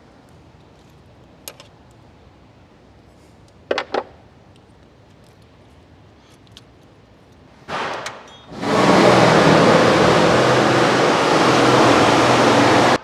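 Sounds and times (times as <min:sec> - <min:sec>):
loud rushing hiss: 0:07.7 - 0:13.0.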